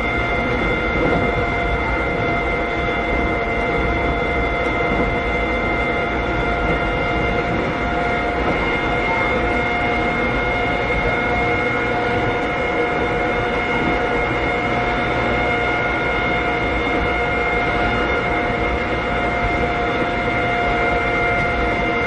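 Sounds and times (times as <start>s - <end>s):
electric train rumble and whine: 0.0s - 22.0s.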